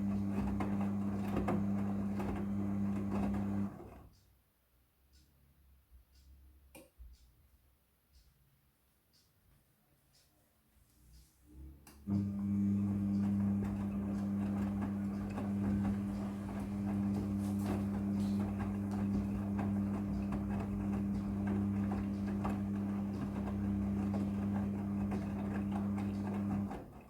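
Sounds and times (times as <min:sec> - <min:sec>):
washing machine motor hum: 0:00.0 - 0:04.1, 0:12.0 - 0:27.0.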